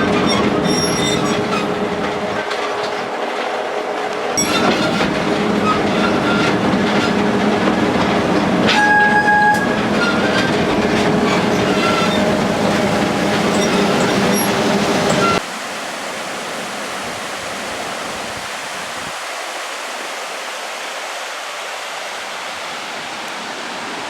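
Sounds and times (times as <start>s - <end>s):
train engine hum: 0.0s - 15.4s
train wheels clattering: 0.0s - 15.4s
train horn: 8.6s - 15.4s.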